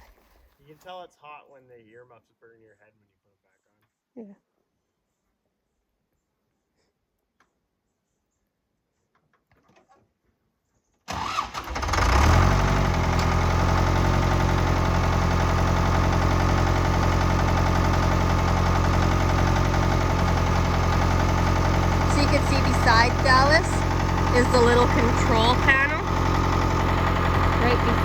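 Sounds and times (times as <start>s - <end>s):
tractor diesel engine running: 11.1s - 28.0s.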